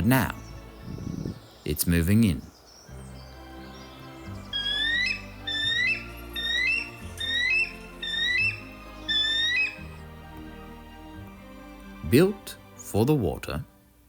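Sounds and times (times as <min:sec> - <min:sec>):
background music: 0:00.0 - 0:14.0
bird of prey whistled calls: 0:03.7 - 0:10.0.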